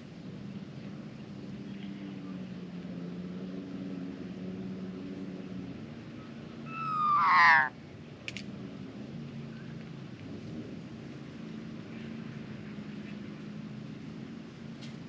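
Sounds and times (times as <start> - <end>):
magpie harsh call: 6.7 - 7.7.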